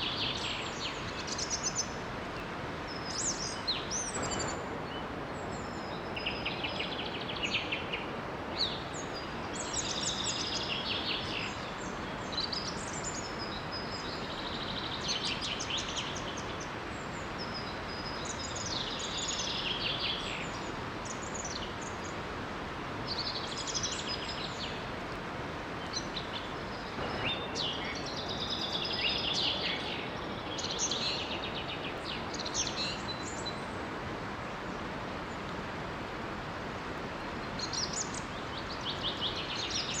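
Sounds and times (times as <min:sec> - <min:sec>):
small waterfall rushing: 0:00.0 - 0:40.0
songbirds trilling: 0:25.7 - 0:35.4.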